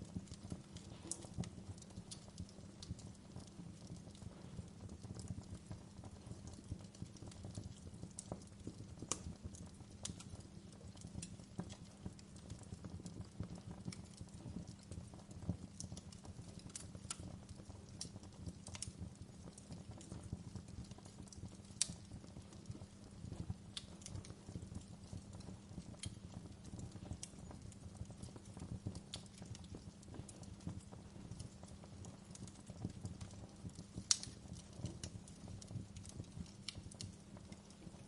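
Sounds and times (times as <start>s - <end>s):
low rumble of flames: 0.0s - 38.0s
wood fire crackling: 0.0s - 38.0s.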